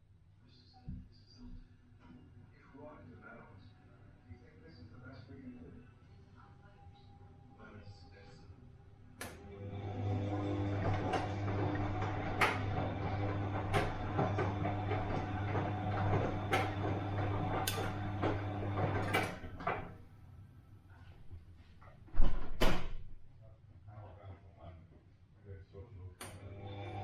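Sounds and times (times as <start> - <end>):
washing machine clunks: 9.2 - 20.0
washing machine motor hum: 9.2 - 20.1, 26.3 - 27.0.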